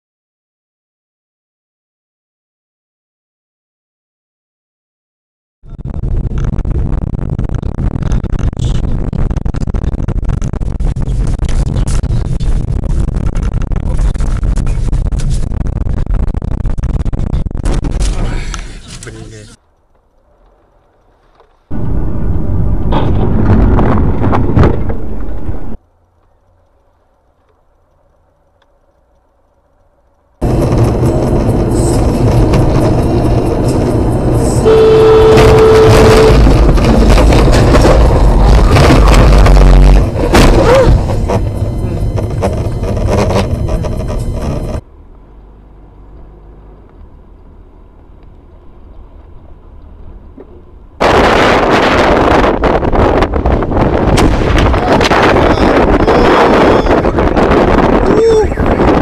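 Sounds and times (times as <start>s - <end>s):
road noise: 6.0s - 59.0s
loud car noise: 21.7s - 25.8s, 30.4s - 59.0s
loud rushing noise: 21.7s - 25.8s, 30.4s - 44.8s.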